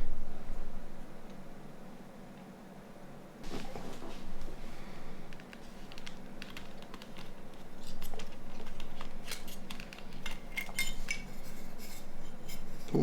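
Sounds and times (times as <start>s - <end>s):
low steady hum: 0.0s - 13.0s
clicks and scrapes of small tools: 7.8s - 11.3s.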